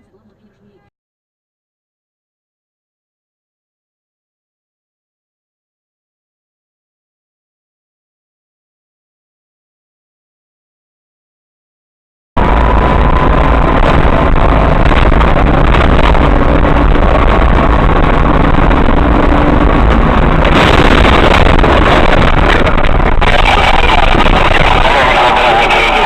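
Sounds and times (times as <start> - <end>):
vehicle engine and road noise: 12.4 - 26.0.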